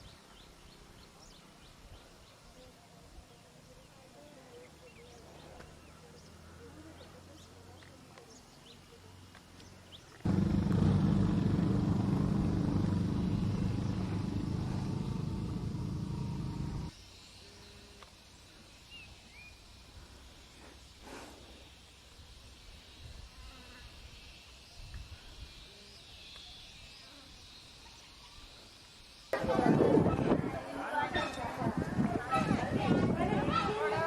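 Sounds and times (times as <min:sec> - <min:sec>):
vehicle engine starting and running: 0:10.3 - 0:16.9.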